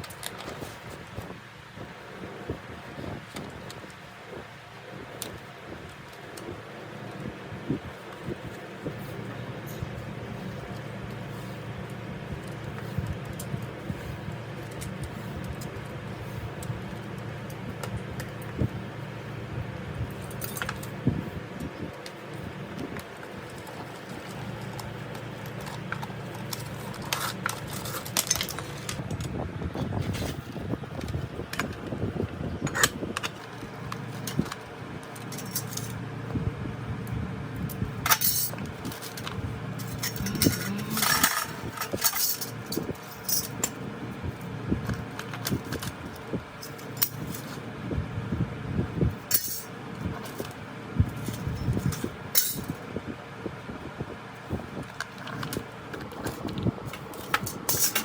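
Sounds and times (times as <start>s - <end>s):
small metal pieces clinking: 23.5s - 29.0s, 35.2s - 36.0s, 38.0s - 43.8s, 49.3s - 50.5s, 51.2s - 52.7s, 57.1s - 58.0s.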